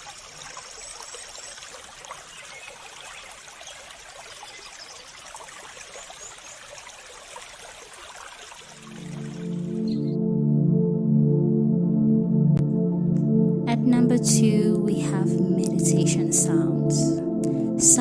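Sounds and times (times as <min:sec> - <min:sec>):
trickle of running water: 0:00.0 - 0:09.6.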